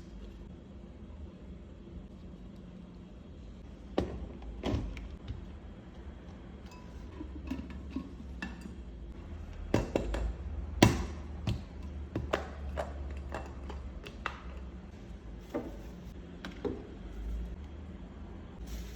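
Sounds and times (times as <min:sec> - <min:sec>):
low steady hum: 0:00.0 - 0:18.9
kitchenware clicks and taps: 0:06.2 - 0:08.8, 0:09.5 - 0:14.8.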